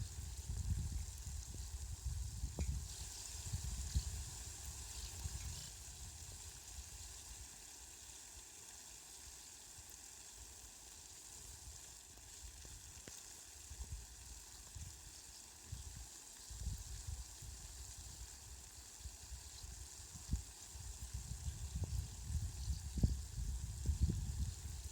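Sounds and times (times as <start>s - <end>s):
steady rain hiss: 0.0s - 24.9s.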